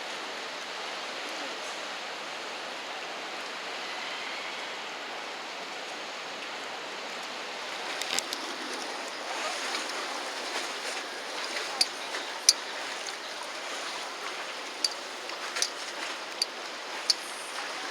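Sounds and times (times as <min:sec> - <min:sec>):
river water rushing: 0:06.0 - 0:17.9
water splashes: 0:07.6 - 0:17.9.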